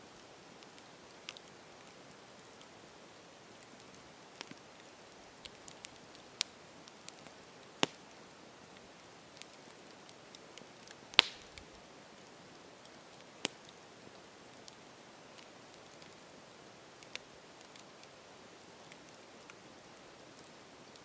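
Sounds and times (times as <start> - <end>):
faint fire hiss: 0.0 - 21.0
campfire crackling and popping: 0.1 - 21.0.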